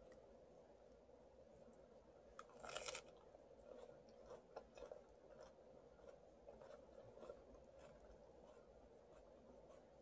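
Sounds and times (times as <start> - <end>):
chewing salad leaves: 2.4 - 10.0.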